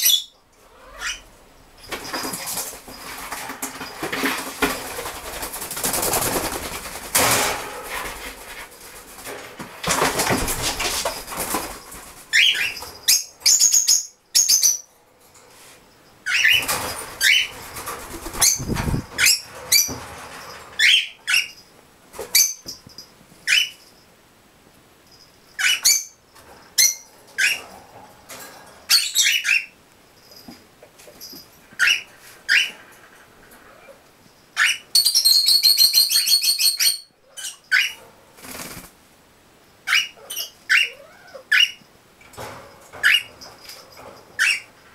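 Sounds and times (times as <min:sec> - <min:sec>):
birds fluttering wings: 0:01.9 - 0:13.0, 0:16.5 - 0:21.0, 0:38.4 - 0:39.0.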